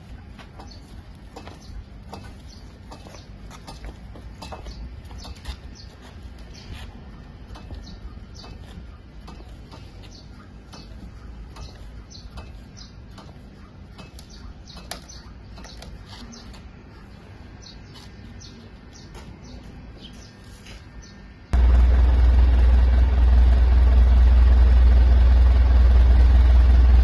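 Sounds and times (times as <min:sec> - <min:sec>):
small birds chirping: 0:00.0 - 0:21.6
low background rumble: 0:21.3 - 0:27.0.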